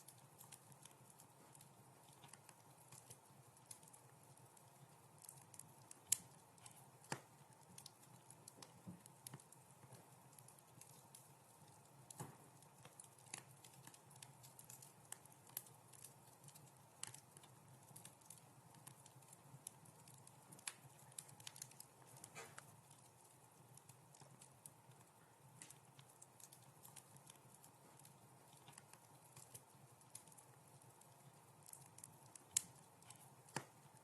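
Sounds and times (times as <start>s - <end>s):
faint steady hiss: 0.0s - 34.0s
wood fire crackling: 0.0s - 34.0s.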